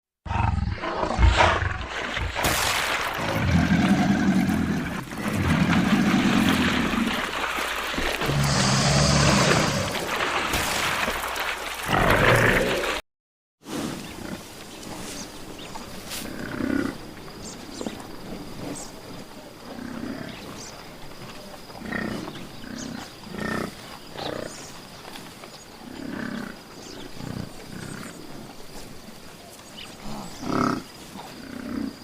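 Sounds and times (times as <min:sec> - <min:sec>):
animal low grunting calls: 0:03.2 - 0:07.4, 0:08.1 - 0:10.2.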